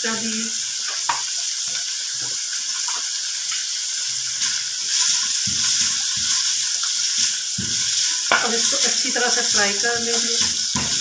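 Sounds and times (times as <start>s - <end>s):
chicken sizzling in a pan: 0.0s - 11.0s
spoon knocking in a pan: 4.4s - 11.0s.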